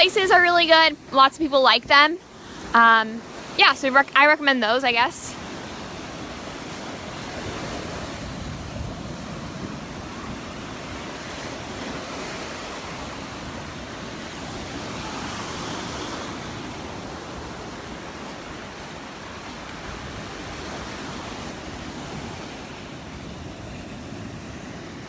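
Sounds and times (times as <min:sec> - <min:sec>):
surf breaking onto beach: 0:00.0 - 0:25.0
wind on microphone: 0:05.3 - 0:25.0.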